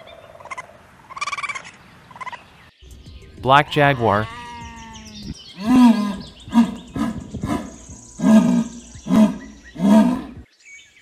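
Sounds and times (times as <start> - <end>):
jaguar grunting roars: 5.0 - 10.4.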